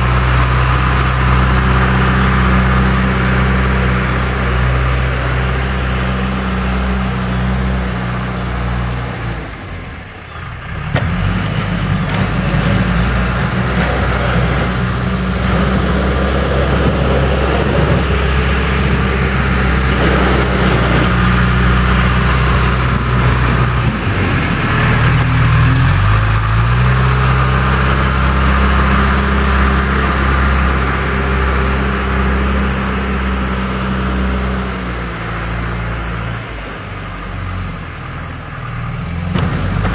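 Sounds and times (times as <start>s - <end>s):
diesel engine running under load: 0.0s - 39.9s
rough scratchy noise: 11.1s - 34.6s.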